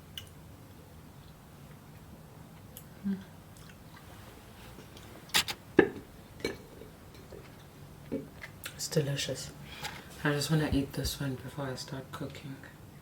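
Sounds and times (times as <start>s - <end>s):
person biting and chewing food: 5.3s - 5.6s
sharp clicks and knocks: 5.3s - 5.6s.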